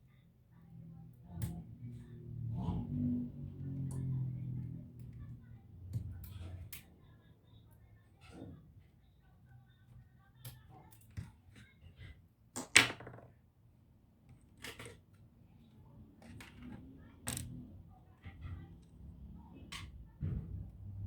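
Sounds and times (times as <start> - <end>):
clicks and knocks of laptop parts: 12.6 - 13.4.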